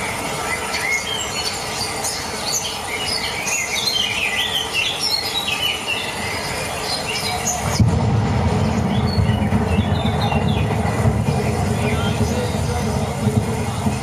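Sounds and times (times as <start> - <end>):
birds chirping and whistling: 0.0 - 7.9, 8.5 - 14.0
steady hiss: 0.0 - 14.0
low pulsing sound: 7.7 - 14.0.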